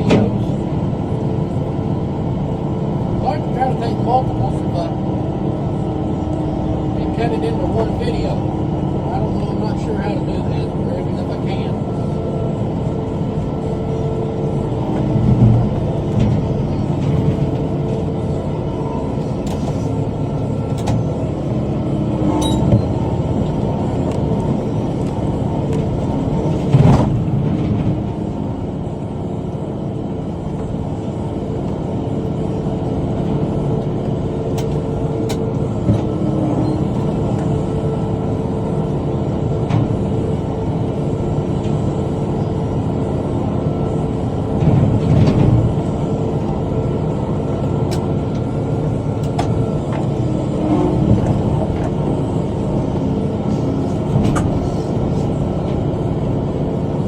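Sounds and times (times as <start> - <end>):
tractor engine running under load: 0.0 - 57.0.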